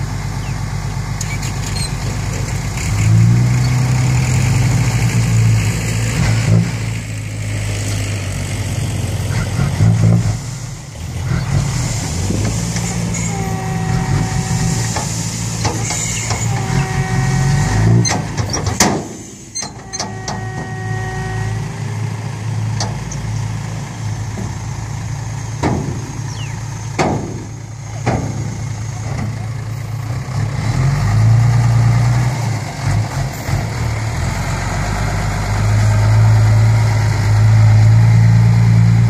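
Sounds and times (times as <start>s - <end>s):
truck engine running: 0.0s - 39.0s
pitched whine: 11.3s - 21.9s
sharp hissing or knocking strokes: 11.6s - 13.6s, 14.3s - 16.7s.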